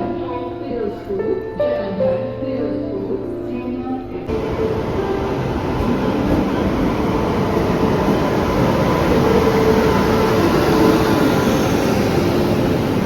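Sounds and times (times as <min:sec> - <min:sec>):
train running: 0:04.3 - 0:13.0.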